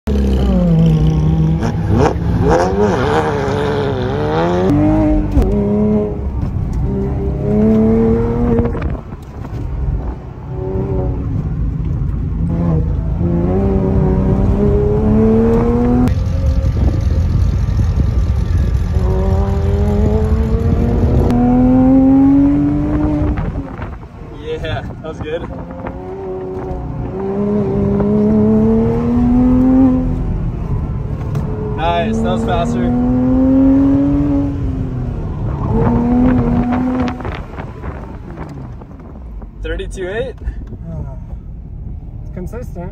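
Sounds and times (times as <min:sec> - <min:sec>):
car engine revving hard: 0:00.1 - 0:06.2, 0:06.9 - 0:09.0, 0:12.4 - 0:23.9, 0:25.4 - 0:30.4, 0:31.4 - 0:38.6.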